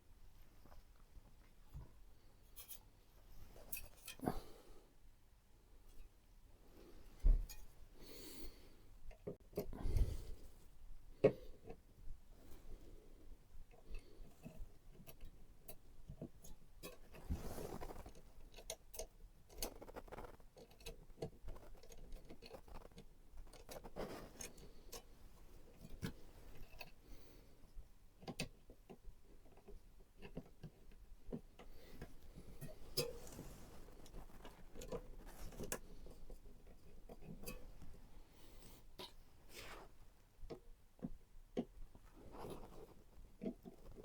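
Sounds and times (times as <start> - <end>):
rustles of plastic parts: 14.2 - 27.0, 28.2 - 44.0
small clicks and taps of parts: 28.1 - 33.4.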